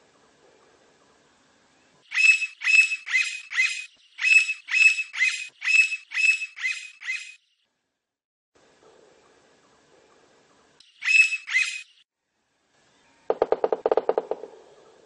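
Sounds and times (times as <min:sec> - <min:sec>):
woodpecker calling falling notes: 0:02.1 - 0:07.4, 0:11.0 - 0:11.8, 0:13.3 - 0:14.6.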